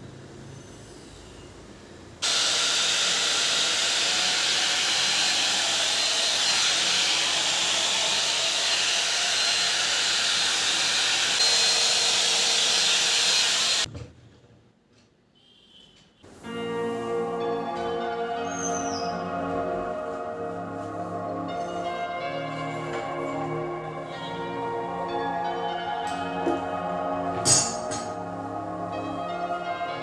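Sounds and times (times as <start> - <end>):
hair dryer running: 2.2 - 13.9.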